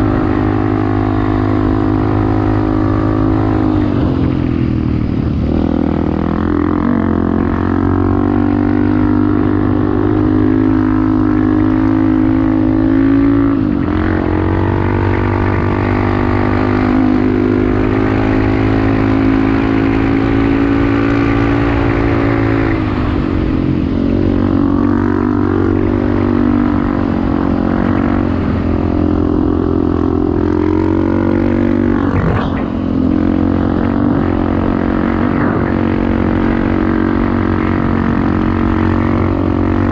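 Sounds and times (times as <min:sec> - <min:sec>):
off-road motorcycle engine: 0:00.0 - 0:39.9.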